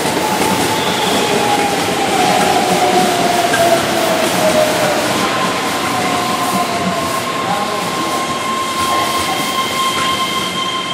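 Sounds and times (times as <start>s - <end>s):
train wheels rumbling on rails: 0.0s - 10.9s
high-pitched wheel squeal: 0.5s - 2.7s, 6.4s - 10.9s.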